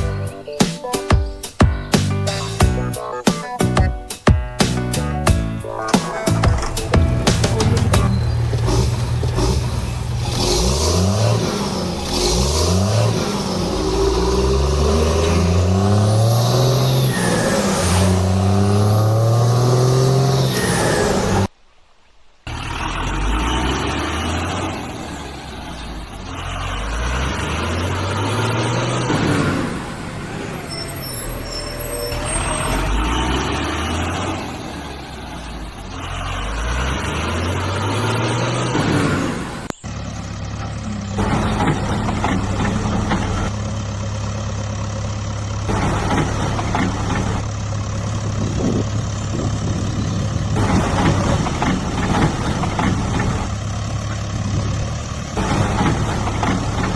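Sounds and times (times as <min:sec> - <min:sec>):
truck engine revving: 0:04.6 - 0:21.5, 0:22.5 - 0:56.9
truck engine idling: 0:04.7 - 0:20.6, 0:22.5 - 0:56.9.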